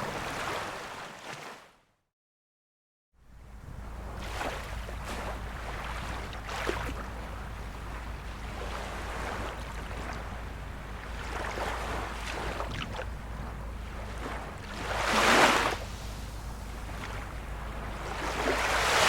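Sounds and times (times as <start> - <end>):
small waves lapping on shore: 0.0 - 1.8, 3.3 - 19.0
low rumble: 3.2 - 19.0.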